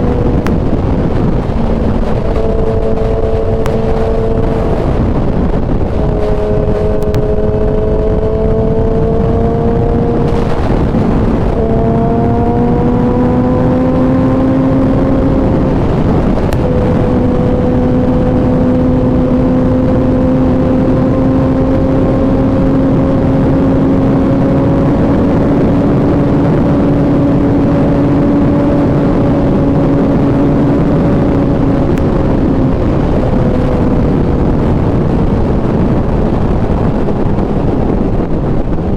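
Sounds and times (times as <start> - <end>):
motorcycle engine accelerating: 0.0 - 38.9
wind rush: 0.0 - 38.9.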